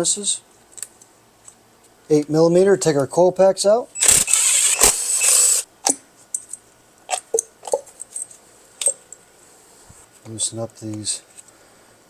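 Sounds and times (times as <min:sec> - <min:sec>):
bolts and parts clinking: 0:05.8 - 0:09.2.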